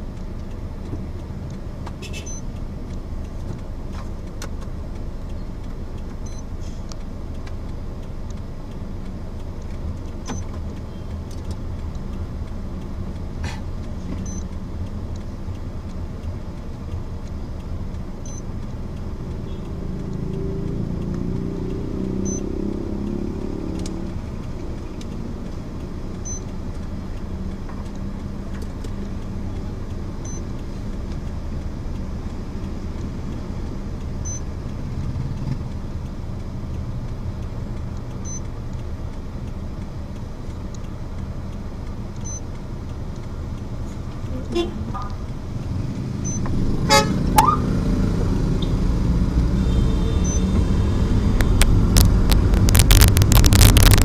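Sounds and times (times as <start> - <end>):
car driving rumble: 0.0 - 54.0.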